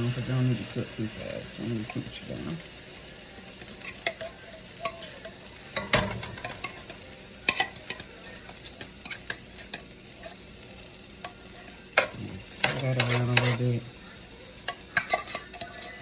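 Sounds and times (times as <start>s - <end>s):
low sizzle from pan: 0.0s - 16.0s
spoon knocking against pan: 3.9s - 9.9s.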